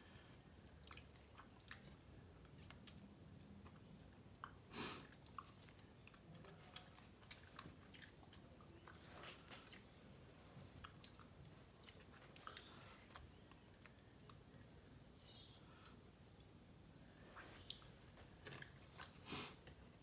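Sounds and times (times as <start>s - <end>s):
person chewing food: 0.7s - 3.0s, 3.6s - 10.0s, 10.7s - 14.7s, 17.6s - 20.0s.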